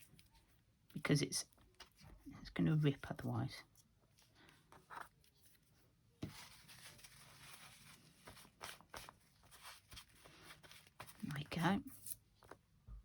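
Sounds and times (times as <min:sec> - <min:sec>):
soft rubbing on paper: 0:03.2 - 0:12.6
paper rustling: 0:03.7 - 0:12.6.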